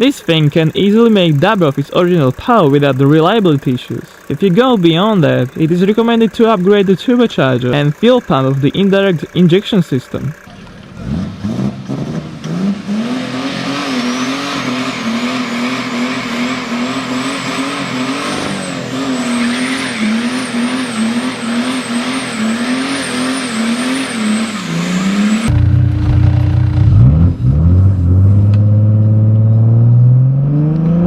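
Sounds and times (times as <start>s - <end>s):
diesel engine revving: 0.0s - 31.0s.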